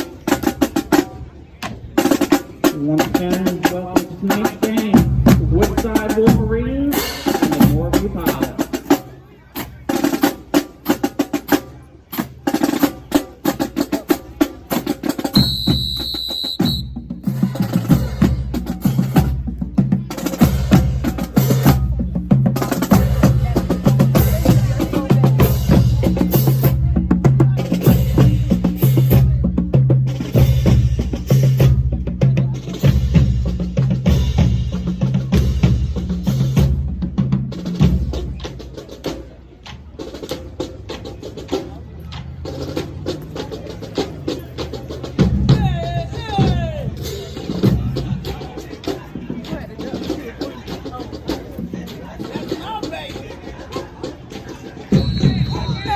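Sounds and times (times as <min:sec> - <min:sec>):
drumline cadence: 0:00.0 - 0:55.9
whistle blast: 0:15.3 - 0:17.1, 0:54.9 - 0:55.9.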